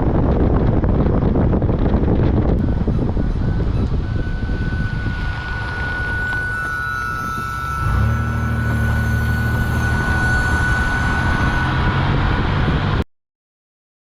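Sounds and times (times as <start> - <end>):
car engine and road rumble: 0.0 - 13.0
high-pitched brake squeal: 2.6 - 13.0.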